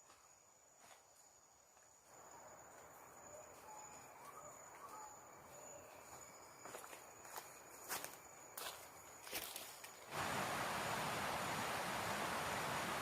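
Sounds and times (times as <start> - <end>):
background hiss: 10.0 - 13.0.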